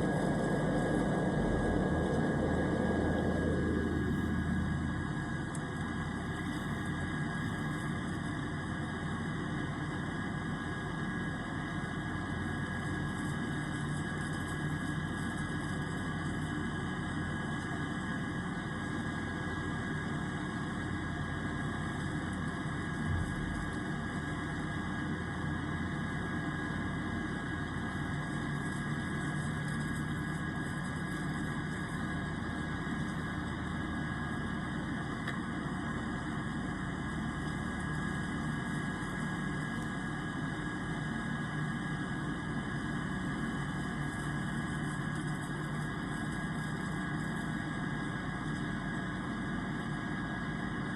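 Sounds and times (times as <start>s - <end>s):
high whine: 0.0s - 8.1s, 22.8s - 24.2s
airplane engine drone: 0.0s - 50.9s.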